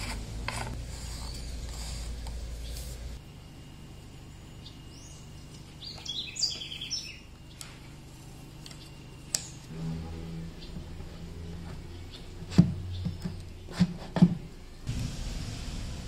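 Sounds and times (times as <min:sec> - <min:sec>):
low steady hum: 0:00.0 - 0:16.0
bird chirping: 0:04.5 - 0:07.6.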